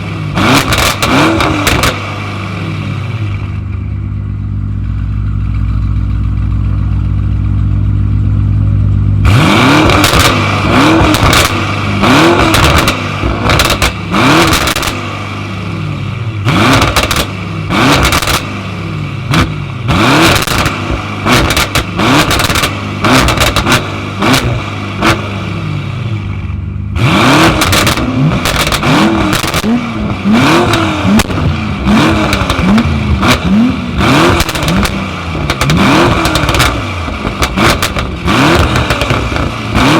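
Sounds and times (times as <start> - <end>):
car engine revving: 0.0 - 7.6, 8.2 - 39.9
exhaust pops and crackles: 0.5 - 2.1, 9.8 - 15.1, 16.7 - 18.6, 20.2 - 25.2, 27.5 - 39.9.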